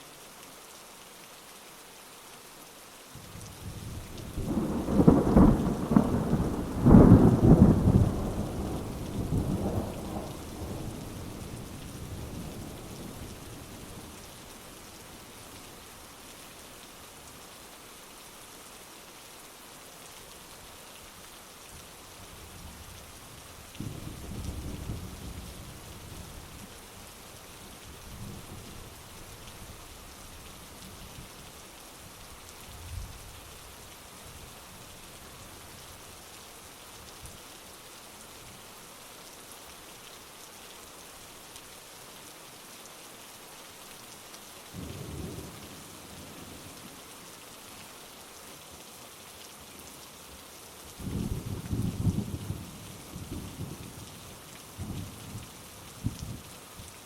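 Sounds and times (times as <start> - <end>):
heavy rain falling: 0.0 - 57.0
thunder rumbling: 4.4 - 11.4.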